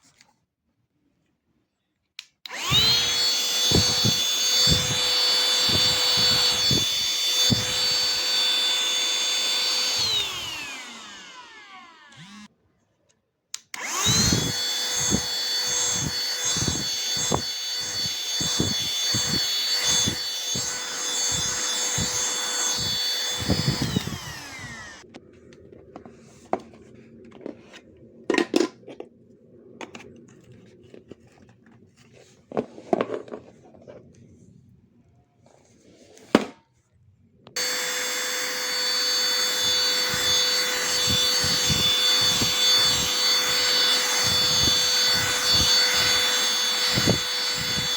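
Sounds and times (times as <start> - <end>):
handheld vacuum motor whine: 2.4 - 12.5, 13.6 - 27.9, 37.5 - 47.9.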